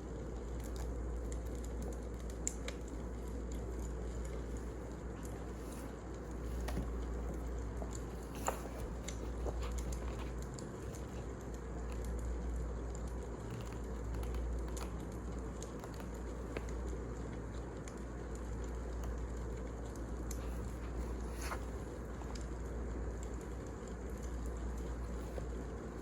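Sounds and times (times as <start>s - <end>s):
wood fire crackling and popping: 0.2s - 20.6s.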